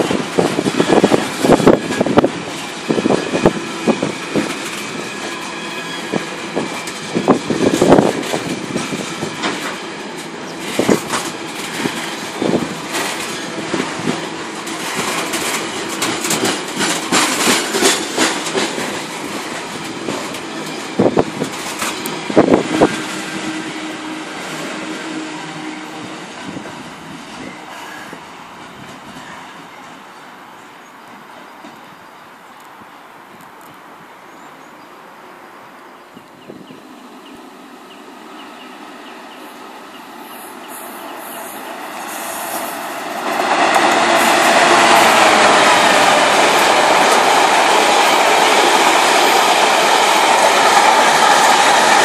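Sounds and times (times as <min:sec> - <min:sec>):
train wheels rumbling on rail: 0:00.0 - 0:34.5, 0:36.1 - 0:52.0
wheels knocking over rail joints: 0:06.6 - 0:23.2.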